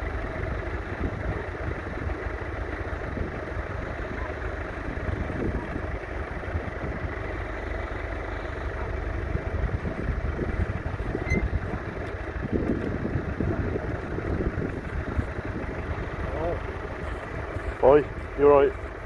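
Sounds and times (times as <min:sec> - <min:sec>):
diesel tractor engine running: 0:00.0 - 0:19.0.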